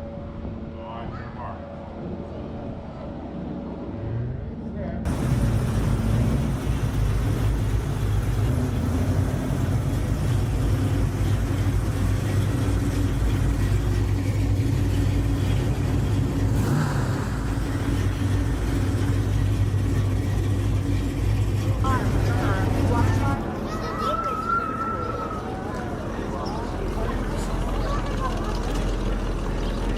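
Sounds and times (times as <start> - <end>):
car engine running: 5.1 - 23.9, 25.3 - 29.9.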